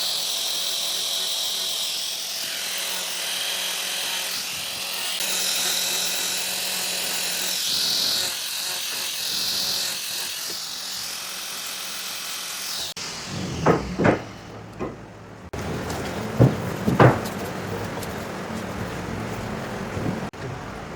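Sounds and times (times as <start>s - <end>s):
power tool motor whining: 0.0s - 15.1s.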